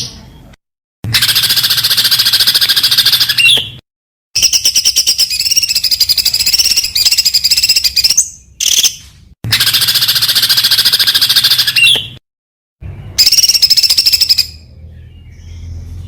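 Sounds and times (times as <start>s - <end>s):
songbird singing fast high notes: 9.5s - 12.2s, 13.2s - 14.7s.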